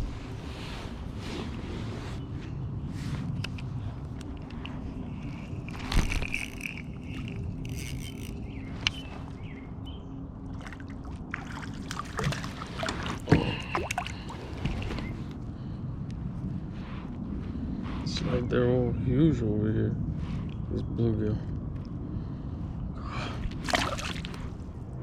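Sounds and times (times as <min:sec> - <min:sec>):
sharp knocks and splashes: 0:10.6 - 0:14.9, 0:23.6 - 0:24.5
water sloshing against kayak: 0:10.6 - 0:15.3, 0:23.5 - 0:24.6.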